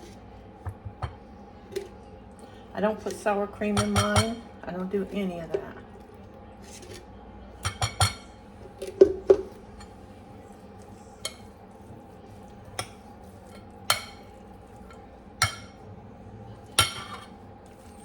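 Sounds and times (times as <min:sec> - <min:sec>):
spoon clinking against bowl: 0:16.8 - 0:17.3.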